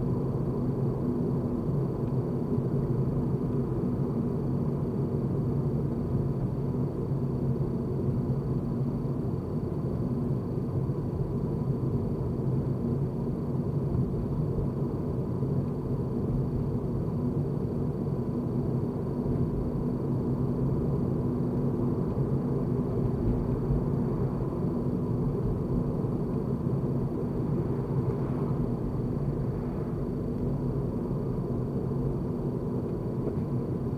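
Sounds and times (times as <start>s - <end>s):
road and engine rumble: 19.3s - 33.9s.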